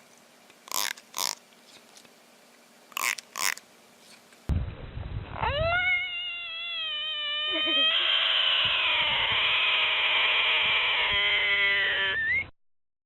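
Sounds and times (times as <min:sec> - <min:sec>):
animal crying: 0:05.4 - 0:12.5.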